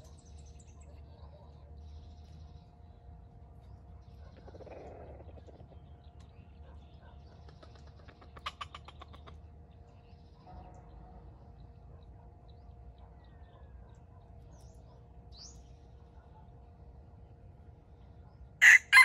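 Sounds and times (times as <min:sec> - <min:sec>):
faint bird calls: 0:04.0 - 0:09.4
rapid rattling bird call: 0:07.2 - 0:09.5.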